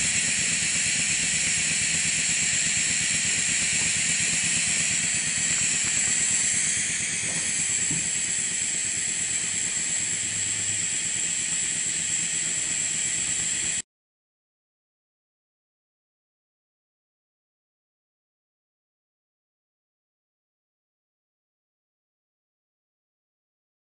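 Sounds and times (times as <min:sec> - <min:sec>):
steam engine exhaust hiss: 0:00.0 - 0:11.2.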